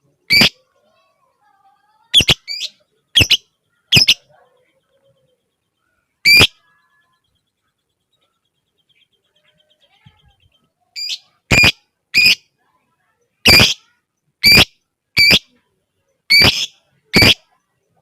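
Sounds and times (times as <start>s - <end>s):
lovebird shrill calls: 0.3s - 0.6s, 2.2s - 4.2s, 6.2s - 6.6s, 11.0s - 12.4s, 13.5s - 13.8s, 14.4s - 15.5s, 16.3s - 17.5s.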